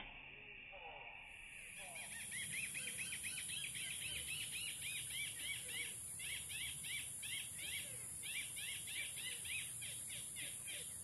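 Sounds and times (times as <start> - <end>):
high-pitched insect drone: 0.0 - 7.1
bird chirping: 1.6 - 11.0.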